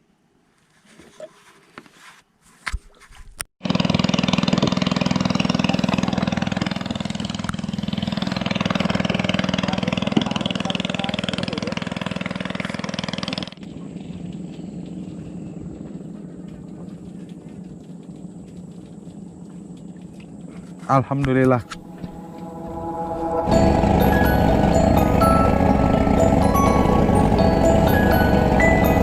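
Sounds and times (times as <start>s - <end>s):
boat engine running: 3.6s - 29.0s
engine knocks: 3.7s - 20.8s, 23.3s - 29.0s.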